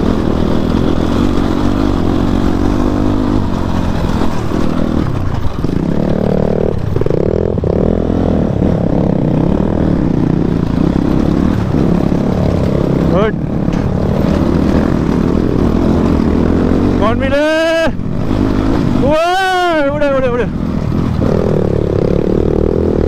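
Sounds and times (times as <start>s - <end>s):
motorcycle engine under load: 0.0s - 23.0s.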